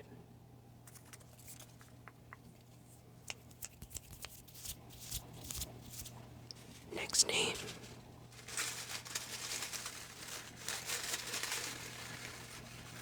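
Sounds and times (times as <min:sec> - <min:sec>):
paper slips rustling: 0:07.3 - 0:13.0.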